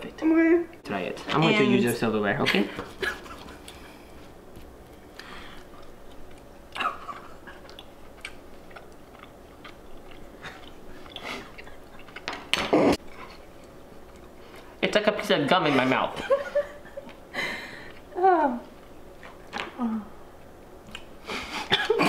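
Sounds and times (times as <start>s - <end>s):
person chewing with wet mouth sounds: 3.4s - 14.8s.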